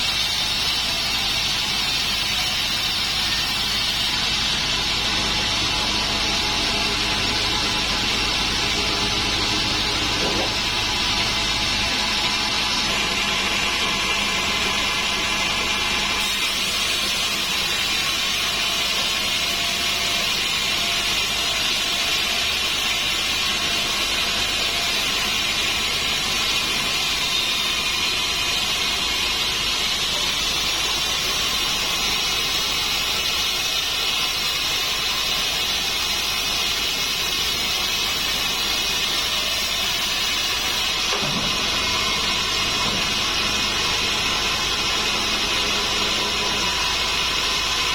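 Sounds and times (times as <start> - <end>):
band saw blade whining in wood: 0.0 - 47.9
machine hum: 2.7 - 18.4.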